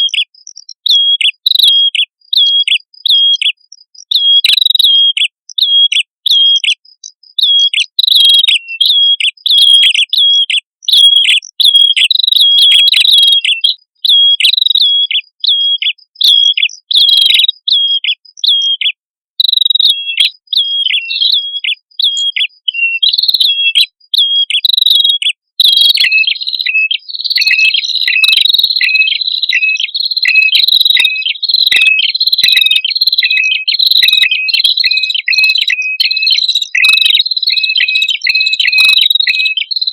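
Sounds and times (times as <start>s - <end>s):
birds chirping: 0.0s - 39.9s
lower bird voice: 0.0s - 39.9s.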